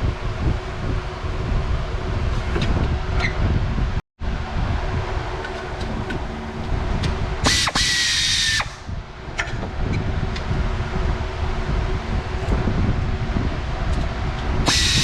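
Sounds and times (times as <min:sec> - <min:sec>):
power tool running: 0:07.4 - 0:08.9, 0:14.6 - 0:15.0
sharp tool clicks: 0:07.5 - 0:08.8.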